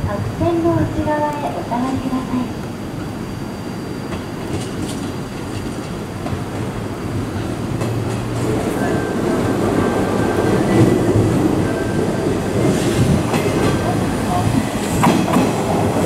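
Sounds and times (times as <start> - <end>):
train wheels clicking over rail joints: 4.1 - 16.0.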